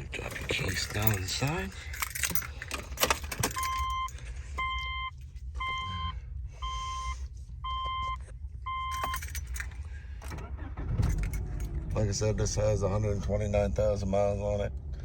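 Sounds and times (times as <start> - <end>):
keys jangling and clicking: 0.0 - 4.2, 8.9 - 10.4, 11.0 - 11.8
car warning chime dinging: 3.5 - 6.8, 7.6 - 9.4.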